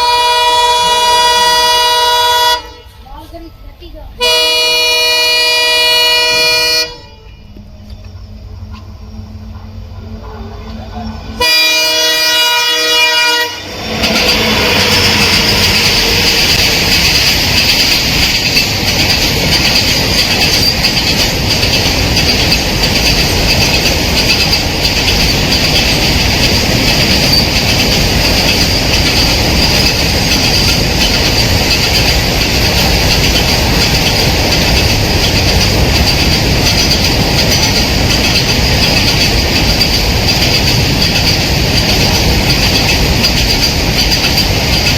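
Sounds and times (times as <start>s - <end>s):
train horn blowing: 0.0s - 3.0s, 4.2s - 16.6s
train passing at speed: 0.0s - 44.9s.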